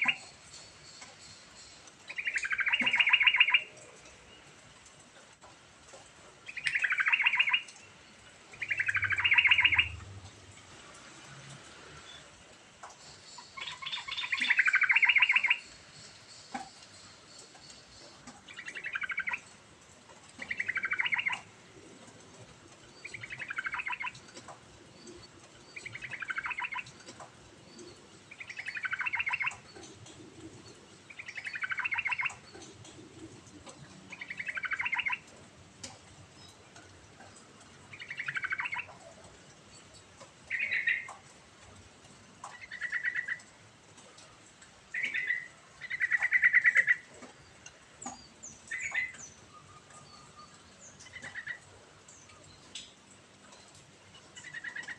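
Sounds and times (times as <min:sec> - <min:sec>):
bulbul singing: 0:00.0 - 0:04.4, 0:06.5 - 0:10.0, 0:13.1 - 0:19.6, 0:20.4 - 0:21.5, 0:23.0 - 0:24.4, 0:25.0 - 0:33.0, 0:34.1 - 0:35.2, 0:35.8 - 0:38.9, 0:40.5 - 0:41.2.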